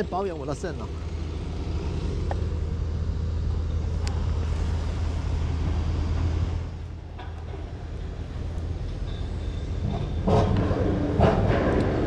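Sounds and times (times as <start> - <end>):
low rumble: 1.1 - 12.0.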